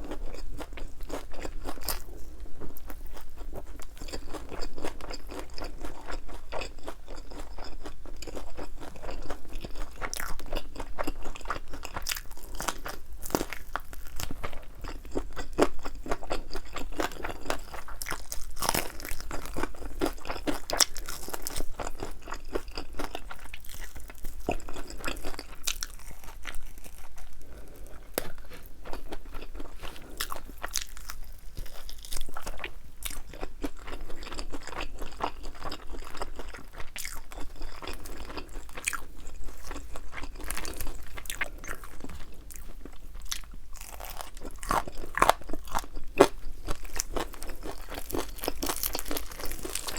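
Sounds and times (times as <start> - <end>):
crunching and chewing fried chicken: 0.0 - 49.9.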